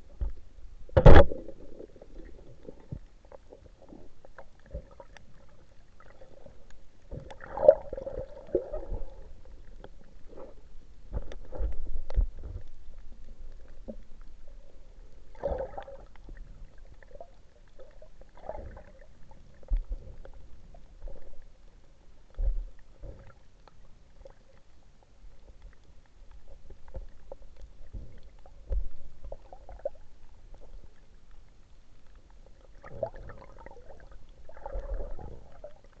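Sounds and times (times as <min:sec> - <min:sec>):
water thumps and gurgling: 0:00.0 - 0:06.2, 0:15.3 - 0:21.5, 0:32.8 - 0:36.0
faint steady hum: 0:00.0 - 0:36.0.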